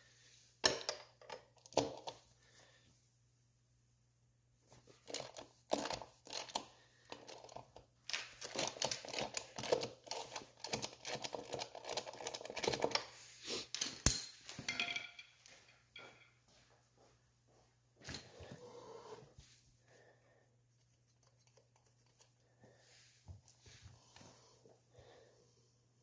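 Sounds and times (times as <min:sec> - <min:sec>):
tools clinking: 0:13.7 - 0:16.4.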